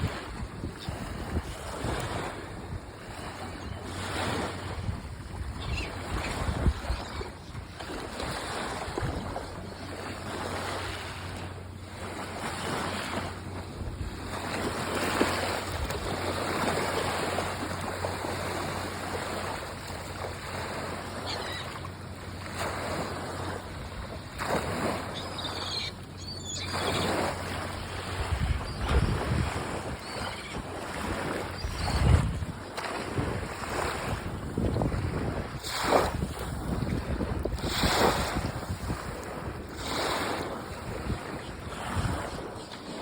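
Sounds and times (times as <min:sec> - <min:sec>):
wind buffeting microphone: 0:00.0 - 0:09.6, 0:23.1 - 0:42.8.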